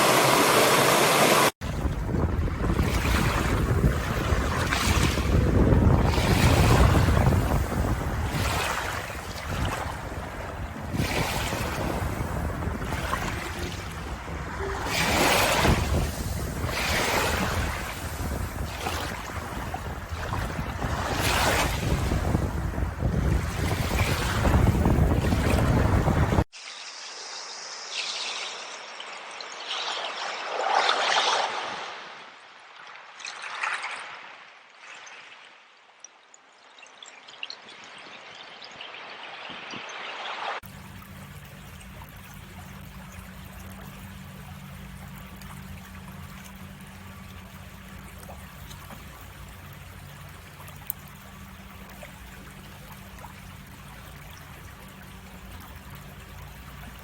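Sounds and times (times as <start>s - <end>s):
sea waves breaking: 0.0s - 26.6s, 27.7s - 35.6s, 37.8s - 57.0s
running water splashing: 0.0s - 32.0s, 40.6s - 57.0s
deep rumble: 1.6s - 26.5s.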